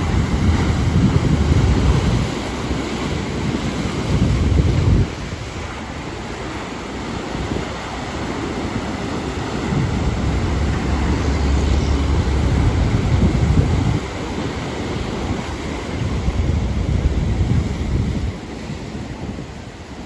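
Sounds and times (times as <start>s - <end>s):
ocean surf breaking: 0.0s - 20.0s
wind buffeting microphone: 0.0s - 20.0s
heavy low rumble: 9.4s - 14.7s.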